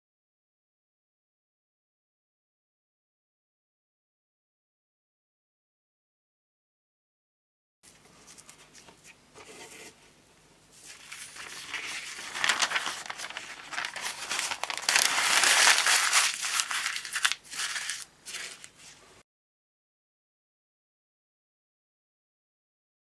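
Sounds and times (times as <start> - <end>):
crinkling rustling handling noise: 10.7 - 19.1.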